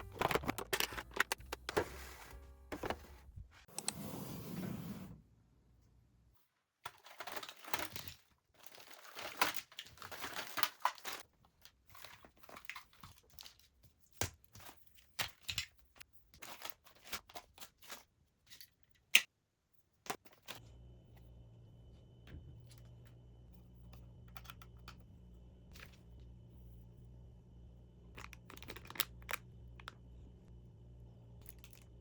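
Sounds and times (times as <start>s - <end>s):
plastic or paper crinkling: 0.0s - 3.4s.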